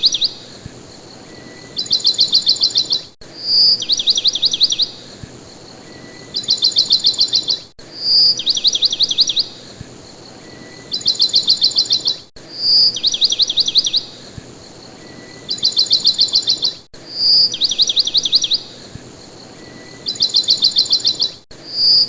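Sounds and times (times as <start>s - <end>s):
bird whistle: 0.0s - 0.4s, 1.3s - 5.0s, 6.0s - 9.5s, 10.4s - 14.1s, 15.0s - 18.7s, 19.7s - 22.0s
bird chirping: 0.0s - 22.0s.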